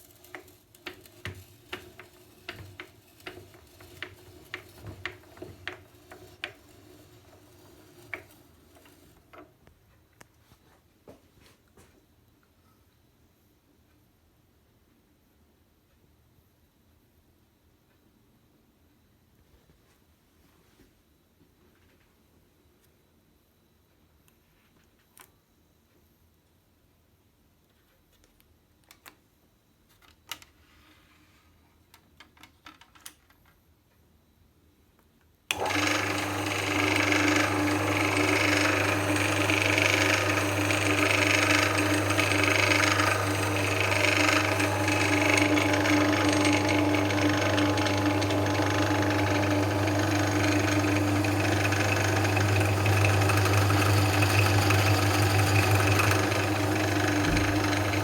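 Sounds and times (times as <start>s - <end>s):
drill press humming: 0.0s - 9.5s, 35.5s - 58.0s.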